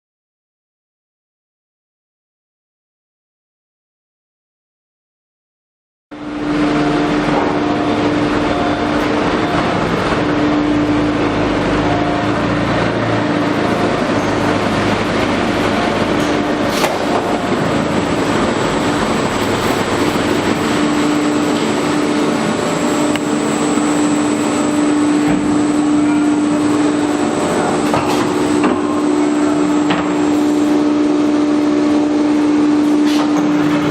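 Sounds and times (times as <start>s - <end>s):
router spindle whine: 6.2s - 32.6s
machining noise: 6.2s - 32.8s.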